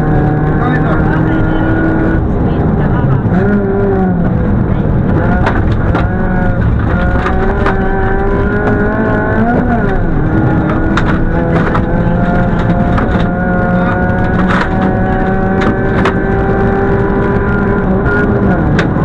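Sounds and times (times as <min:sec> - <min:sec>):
rally car engine revving: 0:00.0 - 0:19.0
sharp knocks and clatters: 0:05.0 - 0:16.9.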